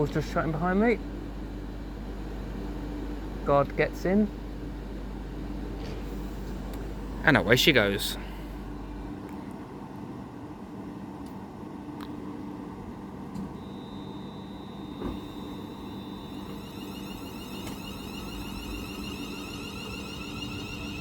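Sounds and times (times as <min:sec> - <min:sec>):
electric train pulling away: 0:13.6 - 0:21.0
traction motor whine: 0:13.6 - 0:21.0.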